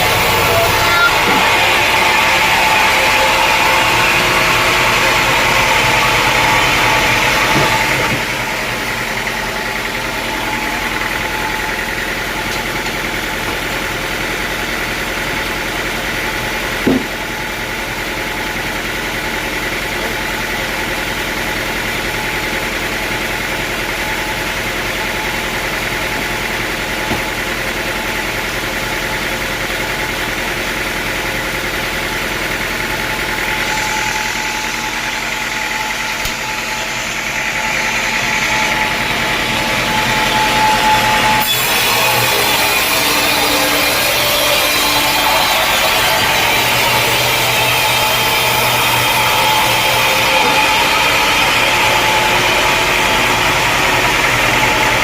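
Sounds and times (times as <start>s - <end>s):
sawmill engine droning: 0.0s - 55.0s
knock: 16.8s - 17.2s.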